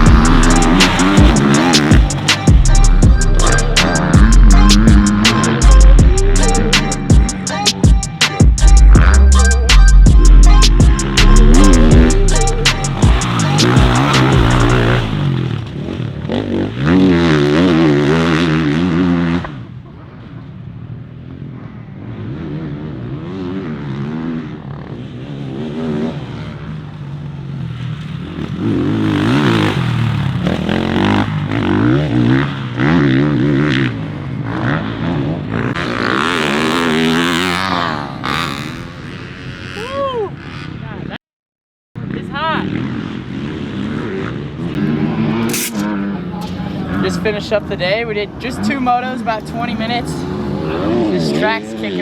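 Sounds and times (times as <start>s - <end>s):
motocross bike engine revving: 0.0s - 19.8s, 21.3s - 41.0s, 42.0s - 47.5s, 48.3s - 52.0s.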